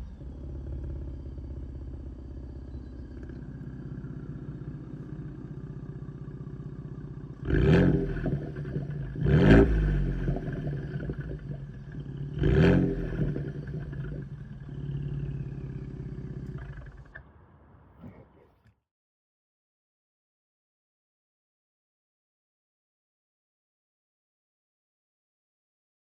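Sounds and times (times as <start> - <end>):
car engine idling and revving: 0.0 - 18.2.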